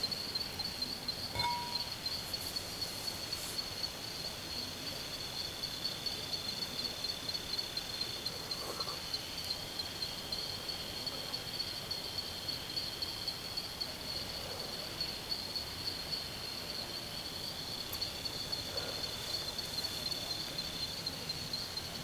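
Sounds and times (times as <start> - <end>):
lower insect trill: 0.1 - 4.2
insects trilling: 0.1 - 4.4.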